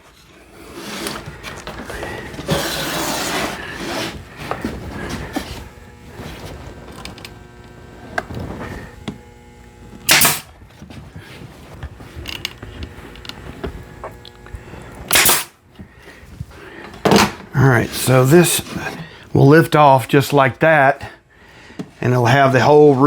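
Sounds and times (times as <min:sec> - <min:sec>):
nail gun firing into boards: 0:10.0 - 0:10.5, 0:15.1 - 0:15.6.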